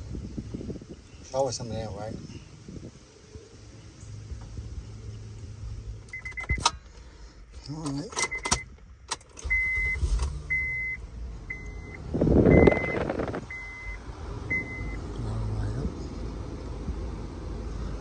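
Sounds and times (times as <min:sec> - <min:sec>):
car engine running: 0:02.7 - 0:18.0
car warning chime beeping: 0:06.0 - 0:06.8, 0:07.6 - 0:15.0.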